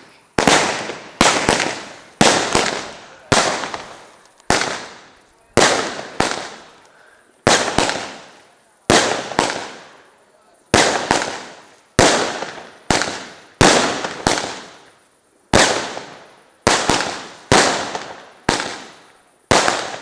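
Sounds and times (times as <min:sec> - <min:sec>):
fireworks exploding with echo: 0:00.0 - 0:20.0.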